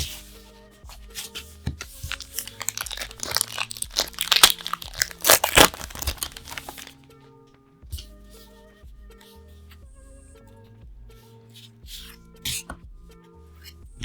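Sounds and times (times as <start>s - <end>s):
foil wrapper crinkling and tearing: 1.9s - 7.0s.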